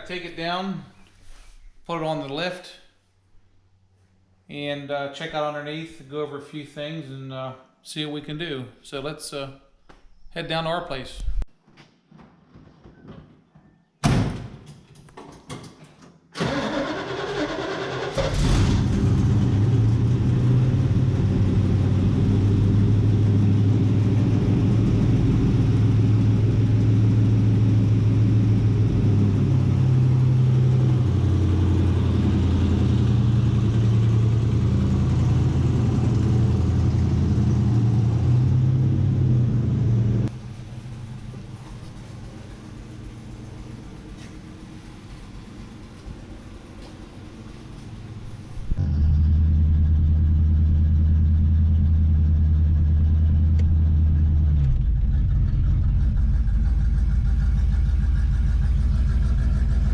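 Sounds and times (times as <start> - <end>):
thump: 14.0 - 14.7
car engine cranking and idling: 16.4 - 59.9.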